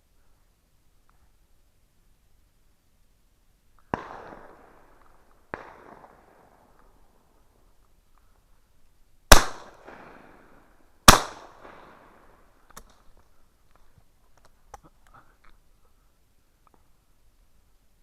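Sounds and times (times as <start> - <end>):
shotgun shots with echo: 9.3 - 10.2, 11.1 - 12.0.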